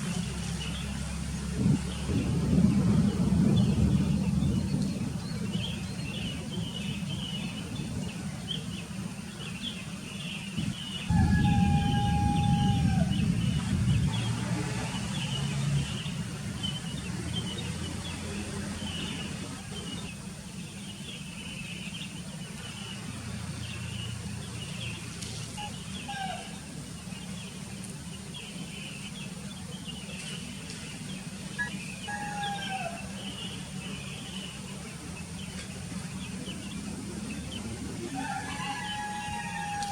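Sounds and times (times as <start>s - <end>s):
small birds chirping: 0.1s - 39.9s
low rumble: 1.3s - 8.2s, 11.1s - 18.4s.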